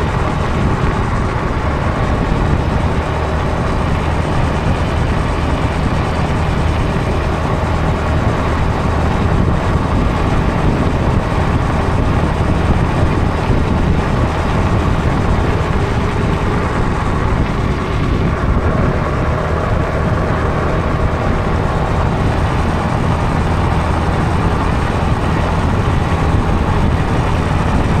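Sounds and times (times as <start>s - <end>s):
road noise: 0.0s - 28.0s
scooter engine running: 0.0s - 28.0s
wind rushing: 0.0s - 28.0s.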